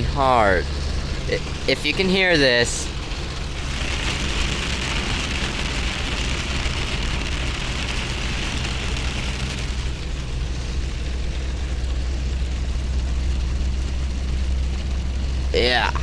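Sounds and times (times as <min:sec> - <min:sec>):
engine rumble: 0:00.0 - 0:16.0
heavy rain on a vehicle: 0:00.0 - 0:16.0
tyres on a wet road: 0:00.0 - 0:16.0.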